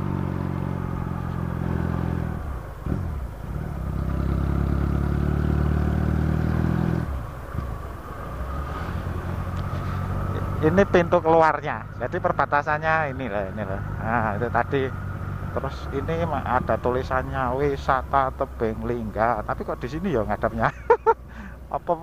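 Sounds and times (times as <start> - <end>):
motorcycle engine running: 0.0 - 11.1.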